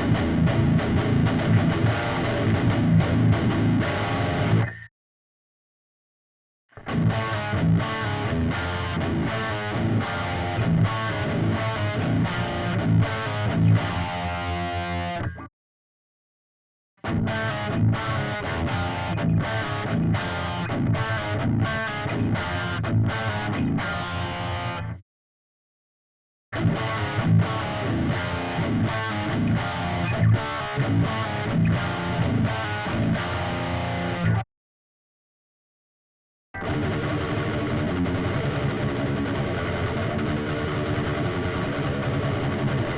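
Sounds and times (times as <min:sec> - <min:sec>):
distorted electric guitar riff: 0:00.0 - 0:04.9, 0:06.8 - 0:15.5, 0:17.0 - 0:25.0, 0:26.5 - 0:34.4, 0:36.6 - 0:42.9.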